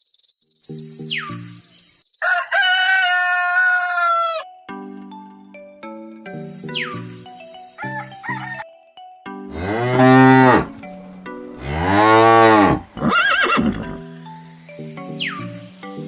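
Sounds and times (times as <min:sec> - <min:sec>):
light chime-like music: 0:04.1 - 0:16.0
cow mooing: 0:09.5 - 0:10.8, 0:11.6 - 0:14.0.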